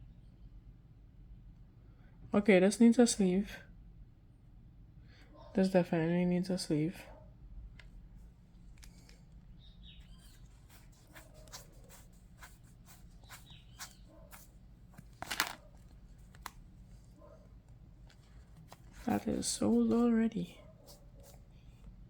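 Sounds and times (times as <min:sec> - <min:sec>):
cards clicking and rustling: 0:08.7 - 0:09.3, 0:13.3 - 0:16.6, 0:17.6 - 0:20.0
card slipped into plastic sleeve: 0:13.3 - 0:16.6.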